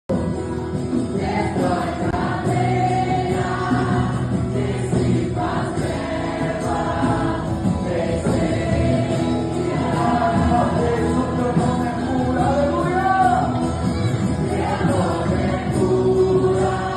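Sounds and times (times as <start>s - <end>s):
band accompaniment: 0.1s - 16.9s
group singing gospel: 0.1s - 16.9s.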